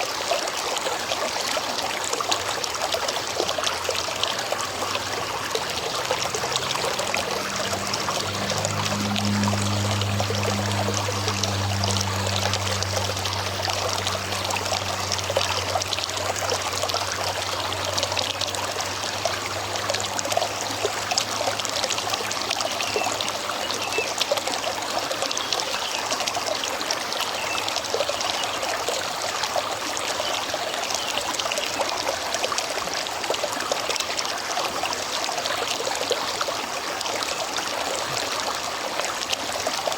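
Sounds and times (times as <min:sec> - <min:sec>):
river water over rocks: 0:00.0 - 0:39.9
low hum: 0:03.6 - 0:23.8.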